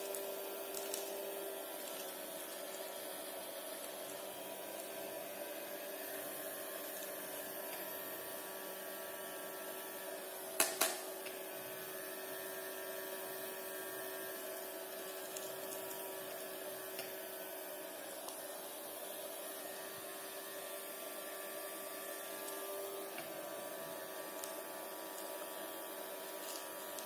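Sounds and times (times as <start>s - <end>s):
small motor fan whining: 0.0s - 27.0s.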